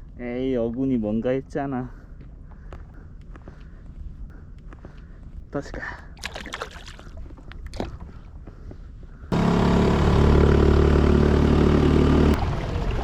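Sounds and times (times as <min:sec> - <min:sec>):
small outboard motor running: 0:09.2 - 0:13.0.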